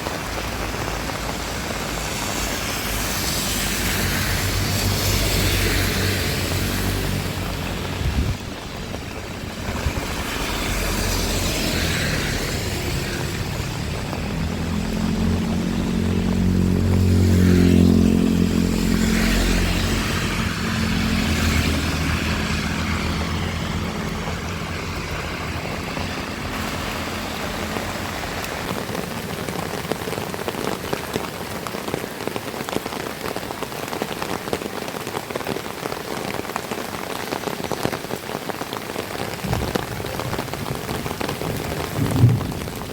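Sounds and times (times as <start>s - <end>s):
heavy rain falling: 0.0s - 42.9s
vehicle engine passing by: 2.0s - 29.3s.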